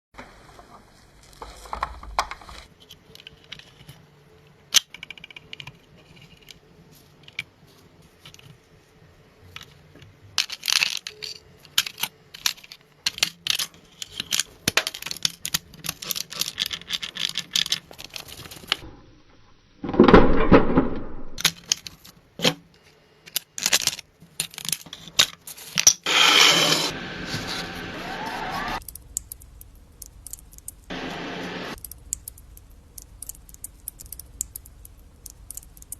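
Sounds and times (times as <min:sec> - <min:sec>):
sharp clicks and knocks: 0:28.8 - 0:35.9.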